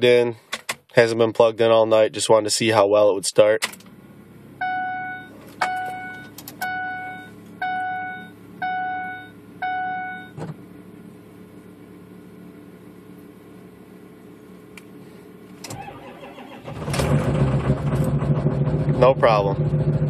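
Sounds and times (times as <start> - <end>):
dashboard warning chime dinging: 4.6 - 10.4.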